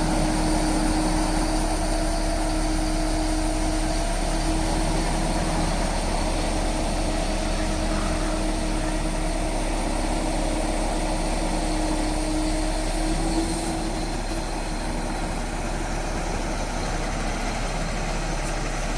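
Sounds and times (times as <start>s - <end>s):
crane engine humming: 0.0s - 18.9s.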